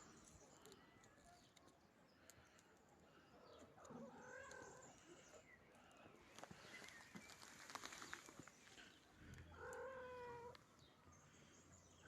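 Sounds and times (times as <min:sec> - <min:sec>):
faint clicks and rustling: 0:05.8 - 0:09.8.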